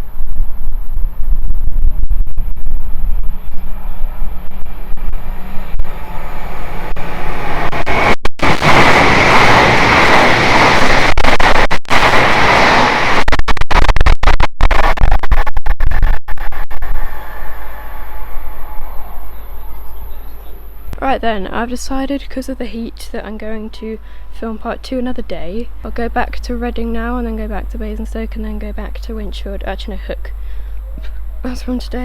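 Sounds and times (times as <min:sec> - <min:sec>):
wind buffeting microphone: 0:00.0 - 0:13.2
train passing at speed: 0:03.4 - 0:13.2, 0:17.1 - 0:21.0.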